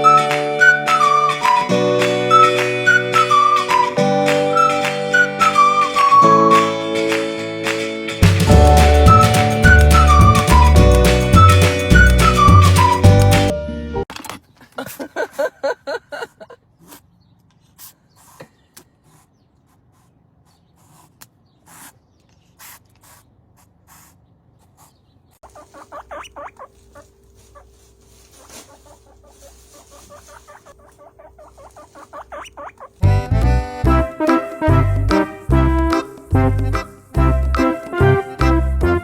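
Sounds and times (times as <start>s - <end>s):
music: 0.0s - 14.1s, 33.0s - 39.0s
small animal squeaking: 19.1s - 33.7s.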